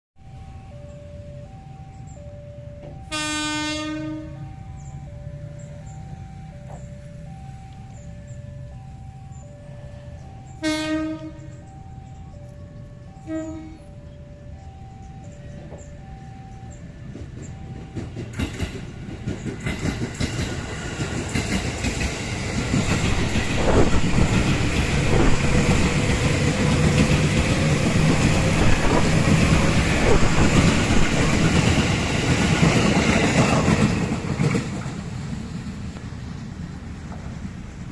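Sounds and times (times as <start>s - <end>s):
train passing by: 0.2s - 37.9s
train wheel clicks: 17.0s - 35.0s.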